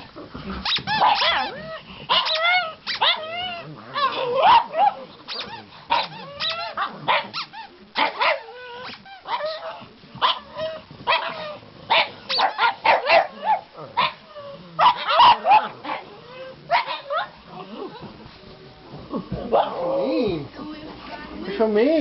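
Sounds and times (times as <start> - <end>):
dogs barking and yipping: 0.7 - 17.4.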